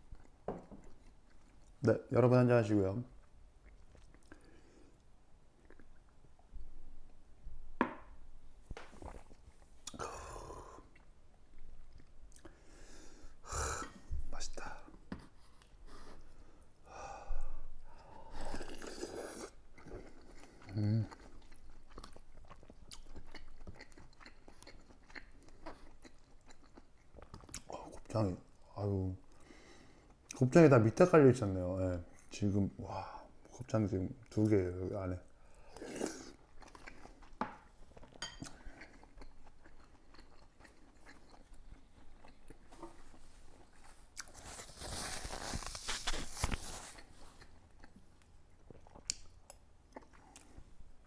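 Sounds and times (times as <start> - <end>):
person chewing food: 0.0 - 1.8, 3.2 - 7.2, 7.8 - 16.8, 17.4 - 30.4, 35.3 - 51.0.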